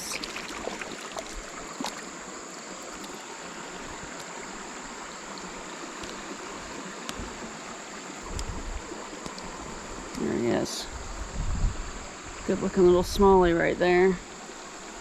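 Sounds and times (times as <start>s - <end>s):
creek water rushing: 0.0s - 15.0s
faint clicks: 9.2s - 9.5s.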